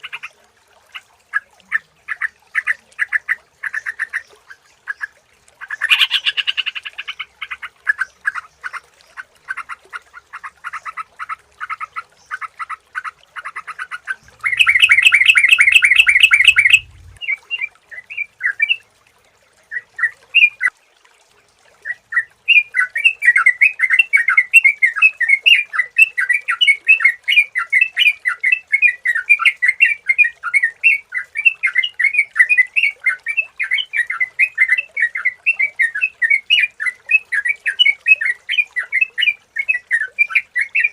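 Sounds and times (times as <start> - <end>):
bulbul chattering calls: 14.4 - 17.2.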